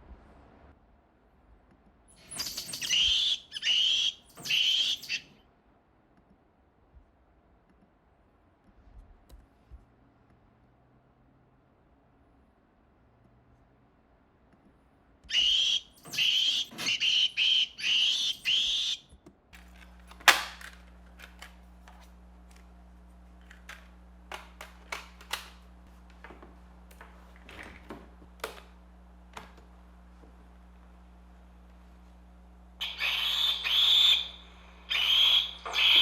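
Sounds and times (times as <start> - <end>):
low electrical hum: 0.0 - 36.0
monkey screams from speaker: 2.2 - 5.3, 15.3 - 19.0, 32.8 - 36.0.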